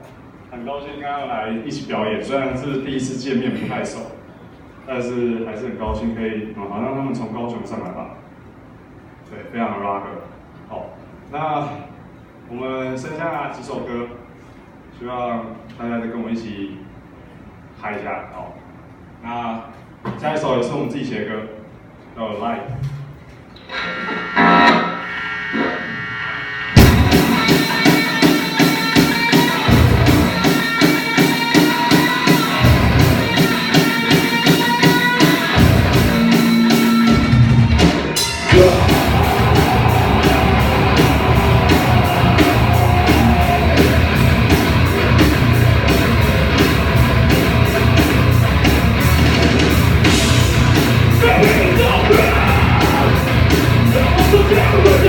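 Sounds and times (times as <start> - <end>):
live rock band playing: 26.8 - 55.0
guitar notes: 38.3 - 55.0.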